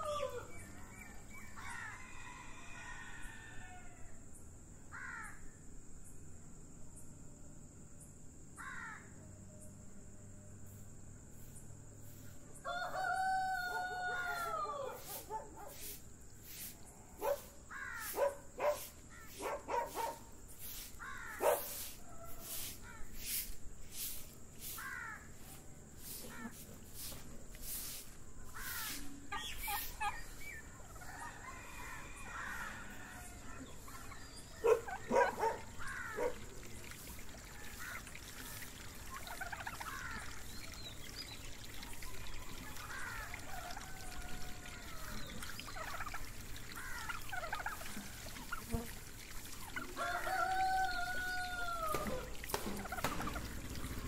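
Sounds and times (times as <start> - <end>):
birds calling: 13.7 - 23.4, 24.6 - 48.9.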